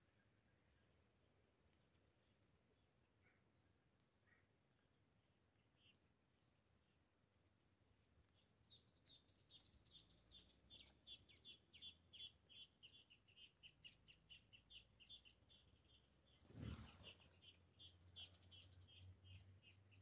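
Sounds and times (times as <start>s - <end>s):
small birds chirping: 0.0s - 20.0s
whoosh of birds flying off: 16.4s - 17.3s.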